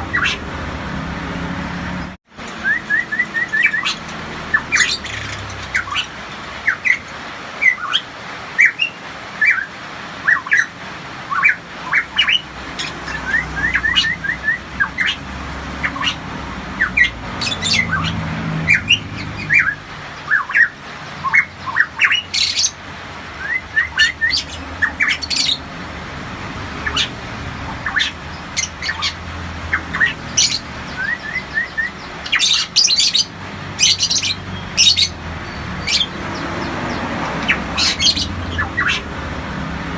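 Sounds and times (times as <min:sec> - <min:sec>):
bird whistled song: 0:00.0 - 0:00.4, 0:02.5 - 0:07.0, 0:07.6 - 0:10.7, 0:11.3 - 0:15.2, 0:15.8 - 0:16.2, 0:16.8 - 0:22.8, 0:23.4 - 0:25.6, 0:26.8 - 0:27.1, 0:27.7 - 0:36.4, 0:37.4 - 0:39.0
harsh rasping bird calls: 0:00.0 - 0:01.0, 0:01.6 - 0:39.5.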